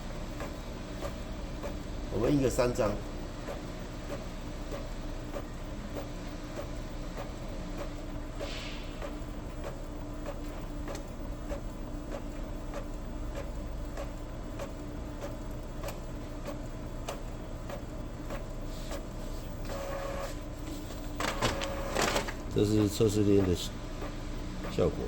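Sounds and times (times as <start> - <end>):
printer motor hum: 0.0 - 25.0
printer clicks and ticks: 21.1 - 25.0.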